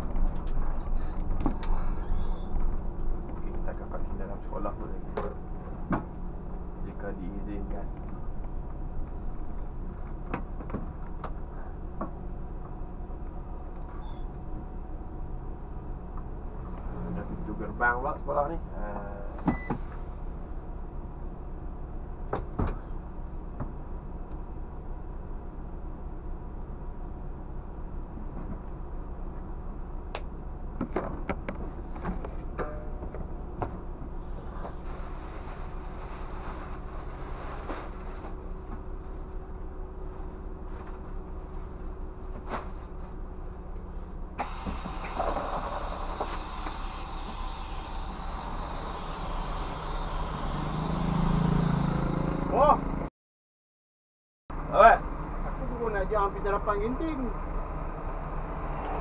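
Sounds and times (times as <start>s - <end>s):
diesel bus engine humming: 0.0s - 53.1s, 54.5s - 59.0s
rush of hissing: 44.4s - 51.5s.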